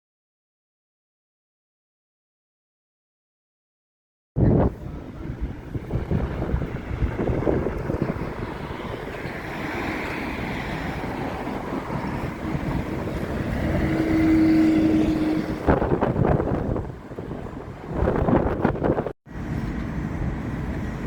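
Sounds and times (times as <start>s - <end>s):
wind buffeting microphone: 4.4s - 21.0s
vehicle running close by: 4.5s - 21.0s.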